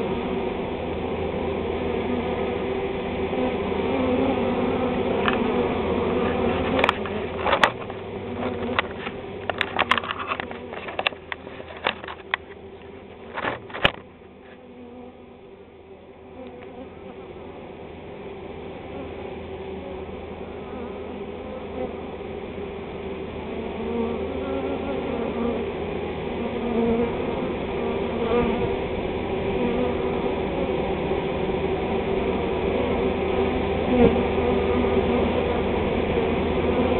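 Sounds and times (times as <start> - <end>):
bee swarm buzzing: 0.0 - 36.9
sharp clicks and knocks: 6.7 - 14.1.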